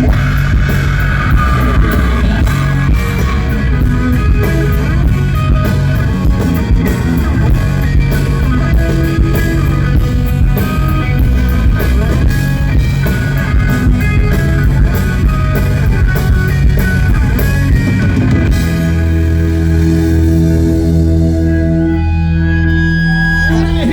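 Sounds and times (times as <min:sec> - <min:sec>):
drum kit: 0:00.0 - 0:22.2
bass guitar: 0:00.0 - 0:23.9
distorted electric guitars: 0:00.0 - 0:23.9.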